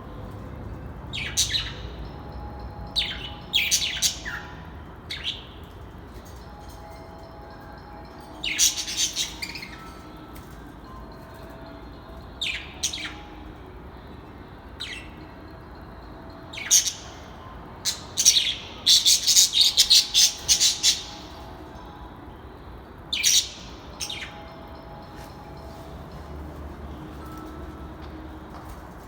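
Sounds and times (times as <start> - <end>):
birds chirping sharply: 8.1 - 10.6, 16.5 - 21.8.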